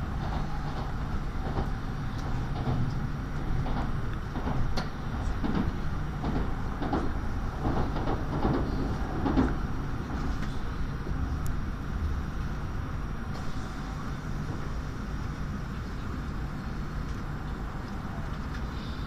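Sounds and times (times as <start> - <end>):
train running low rumble: 0.0 - 19.0
knocks and rattles: 2.5 - 9.6.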